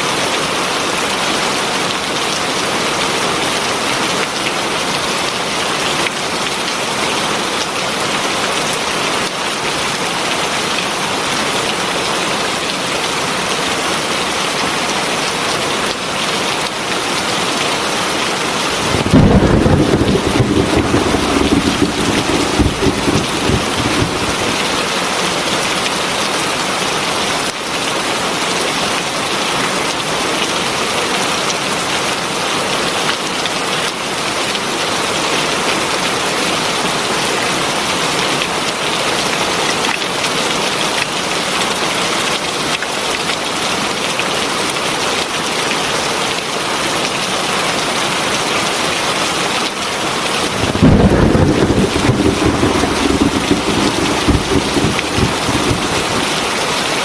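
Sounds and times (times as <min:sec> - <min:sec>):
heavy rain falling: 0:18.3 - 0:25.9, 0:50.2 - 0:57.0
thunder rumble: 0:18.6 - 0:25.2, 0:50.4 - 0:57.0.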